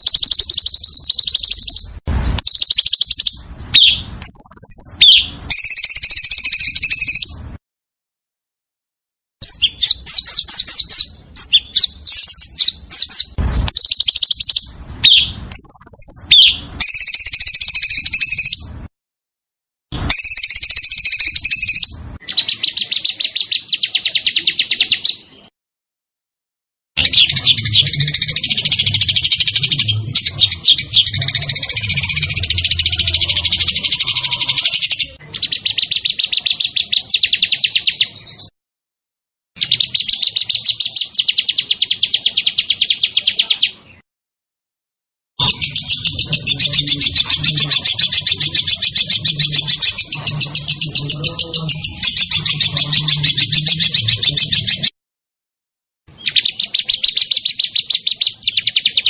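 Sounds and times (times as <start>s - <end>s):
songbird trilling: 0.0s - 7.4s, 9.4s - 18.7s, 20.1s - 25.3s, 27.0s - 38.5s, 45.4s - 54.9s, 56.2s - 59.0s.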